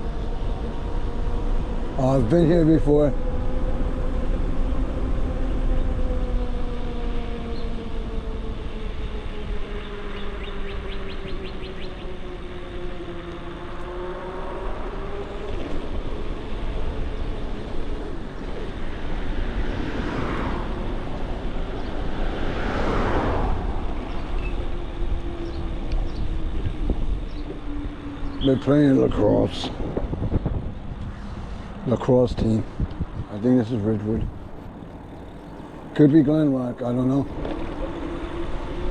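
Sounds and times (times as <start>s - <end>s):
electric bike motor whining: 0.0s - 38.9s
wind buffeting microphone: 0.0s - 38.9s
rushing swells: 16.6s - 25.8s.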